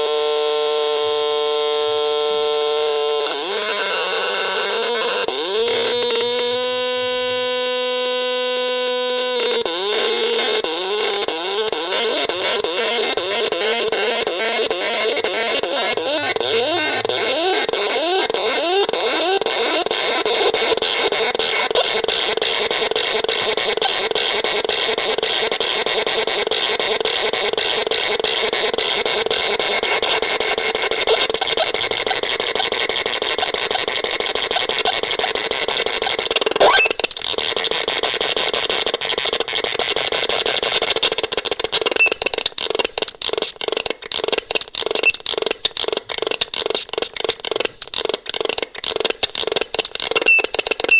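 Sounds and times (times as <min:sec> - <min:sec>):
chirping electronic pulses: 0:09.0 - 0:50.9
rapid electronic pulsing: 0:10.0 - 0:23.5.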